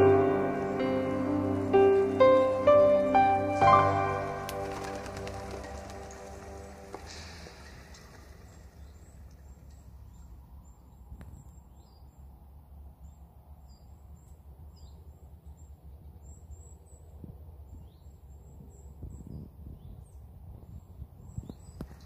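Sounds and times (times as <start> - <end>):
small birds chirping: 7.6 - 22.0.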